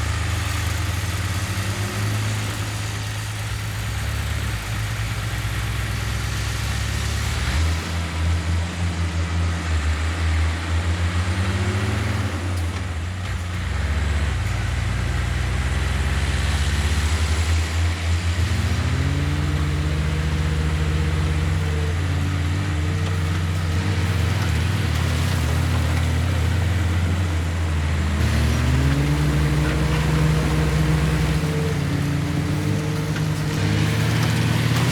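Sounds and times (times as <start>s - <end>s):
diesel engine revving: 0.0s - 34.9s.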